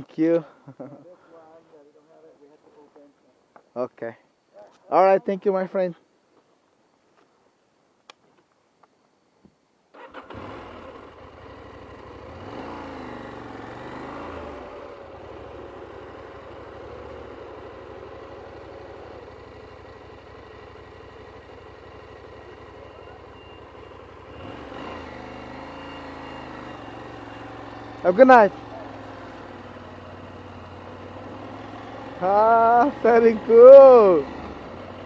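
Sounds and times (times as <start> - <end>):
motorcycle engine revving: 10.0 - 35.0.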